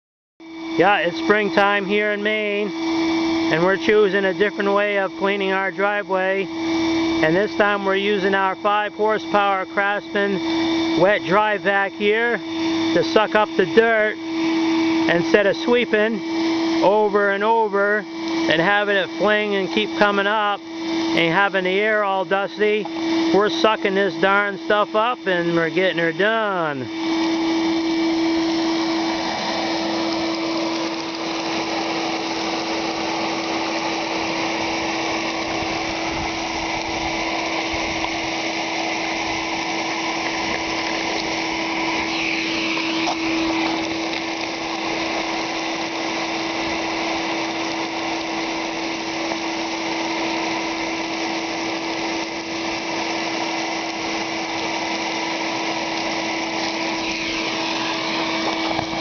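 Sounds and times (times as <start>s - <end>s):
shop vacuum motor whine: 0.4s - 59.0s
vacuum sucking up grit and pebbles: 0.5s - 59.0s.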